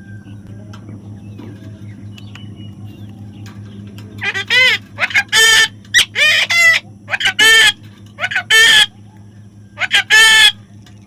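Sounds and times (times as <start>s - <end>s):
parrot squawking: 4.2s - 9.0s, 9.8s - 10.6s.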